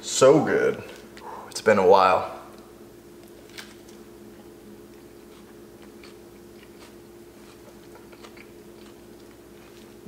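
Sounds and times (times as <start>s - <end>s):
steady low hum: 0.0s - 10.0s
person chewing: 3.2s - 10.0s.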